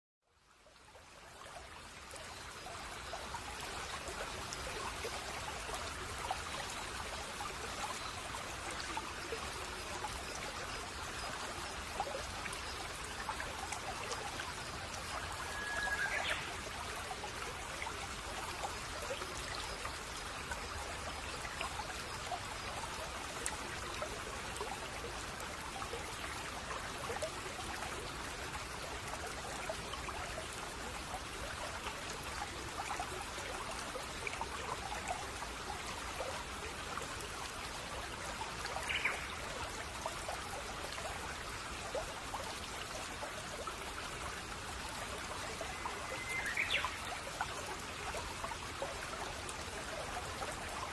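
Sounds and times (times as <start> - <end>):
brook babbling: 0.2 - 50.9.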